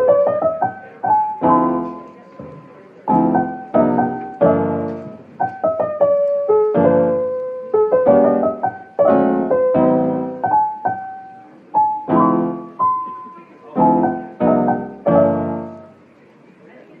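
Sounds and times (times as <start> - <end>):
gentle piano music: 0.0 - 16.2.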